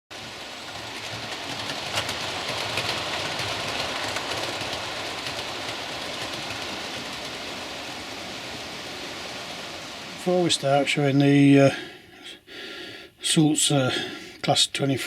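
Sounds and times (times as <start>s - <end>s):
sharp track clicks: 0.1s - 8.9s
model train rolling on track: 0.1s - 12.4s.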